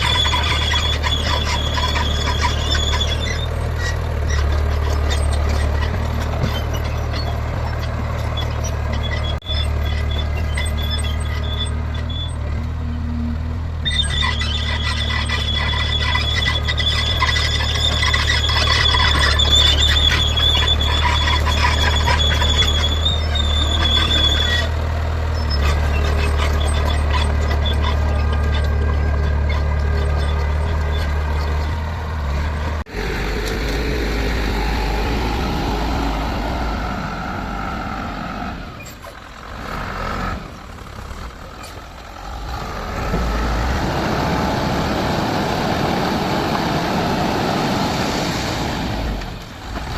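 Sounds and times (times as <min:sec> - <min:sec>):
high-pitched squeal: 0:00.0 - 0:12.4, 0:13.8 - 0:39.5
heavy diesel engine running: 0:00.0 - 0:49.9.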